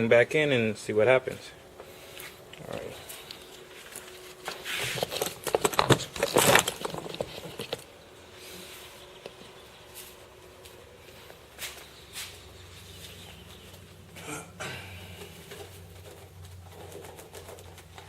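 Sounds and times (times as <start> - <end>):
rustling and clicking handling noise: 1.7 - 8.0, 15.2 - 18.0.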